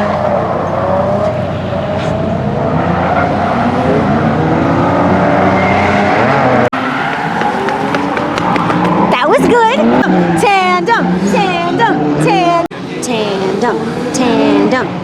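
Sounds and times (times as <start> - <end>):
car engines revving: 0.0 - 15.0
tyre noise: 6.8 - 10.3.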